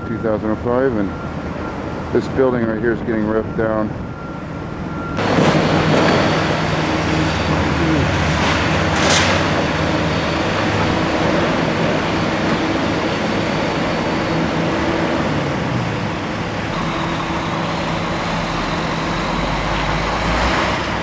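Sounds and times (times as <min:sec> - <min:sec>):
heavy machinery engine running: 0:00.0 - 0:21.0.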